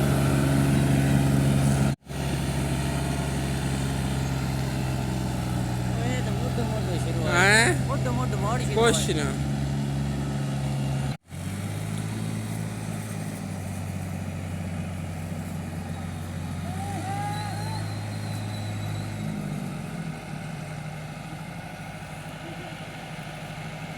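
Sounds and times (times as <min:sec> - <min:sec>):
tractor diesel engine humming: 0:00.0 - 0:23.9
short rising and falling chirps: 0:16.8 - 0:20.5.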